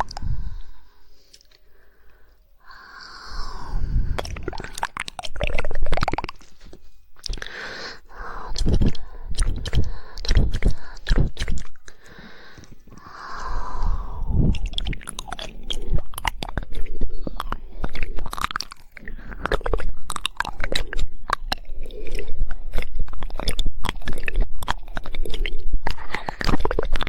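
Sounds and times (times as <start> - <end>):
rapid tongue clicks: 0.0 - 27.0
wet mouth noises: 0.0 - 27.0
breathy hiss: 0.3 - 4.4, 12.0 - 14.3.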